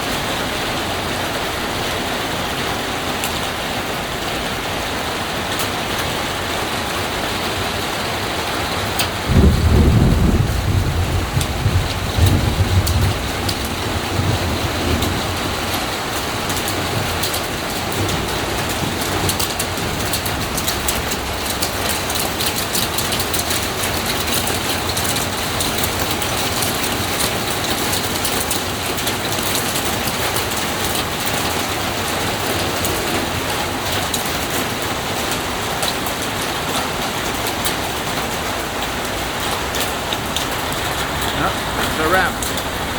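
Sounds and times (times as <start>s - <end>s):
heavy rain falling: 0.0s - 42.9s
sharp raindrop hits: 8.9s - 42.9s
low thunder rumble: 9.0s - 26.5s.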